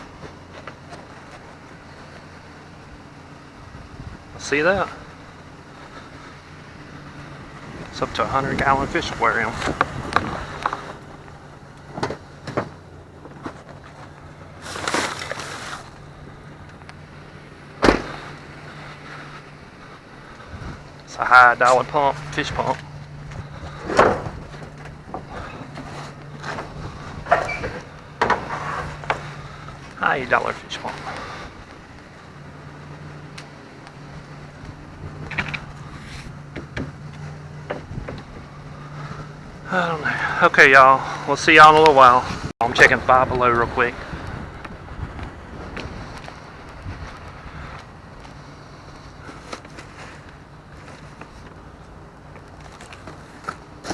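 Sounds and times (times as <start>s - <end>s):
steady low hum: 0.0s - 53.9s
rustle: 9.5s - 17.4s, 44.0s - 53.9s.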